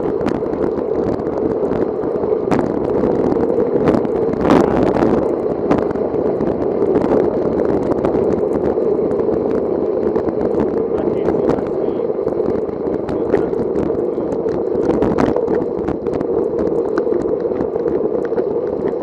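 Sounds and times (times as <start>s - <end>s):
bicycle tyres on wet road: 0.0s - 19.0s
rushing wind: 0.0s - 19.0s
small ticks and knocks: 12.4s - 19.0s.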